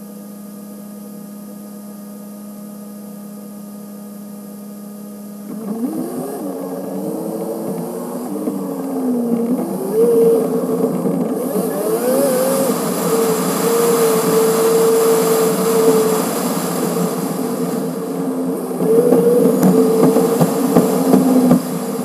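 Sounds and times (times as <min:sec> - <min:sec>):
car engine whine: 0:00.0 - 0:22.0
rushing wind hiss: 0:09.5 - 0:22.0.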